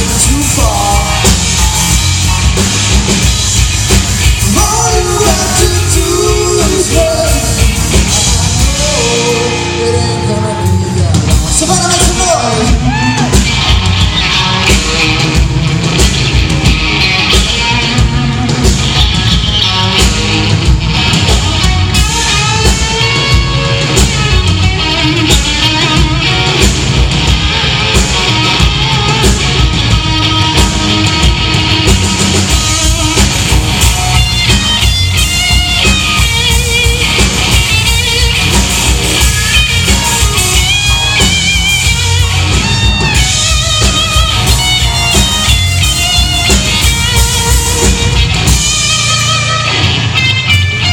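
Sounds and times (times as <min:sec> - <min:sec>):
electric guitar melody: 0:00.0 - 0:50.9
live rock band playing: 0:00.0 - 0:50.9.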